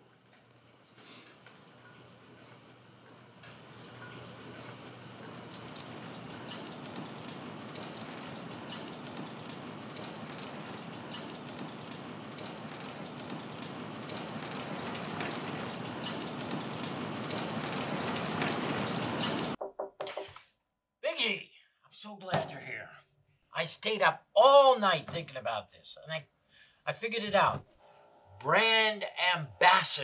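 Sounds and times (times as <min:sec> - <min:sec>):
steady rain: 0:02.9 - 0:19.6
raindrops ticking: 0:03.6 - 0:19.6.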